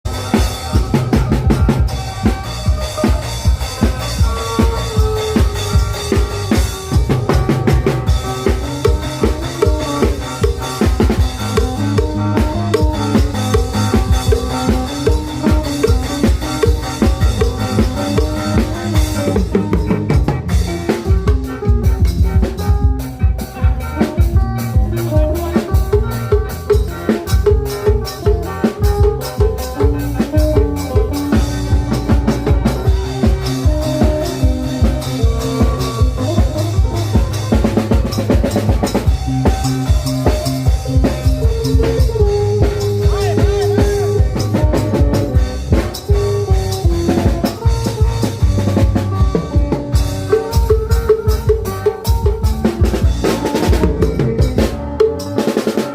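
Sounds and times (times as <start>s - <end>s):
driving drum beat on long drums: 0.0s - 55.9s
lute and mouth organ melody: 0.1s - 55.9s.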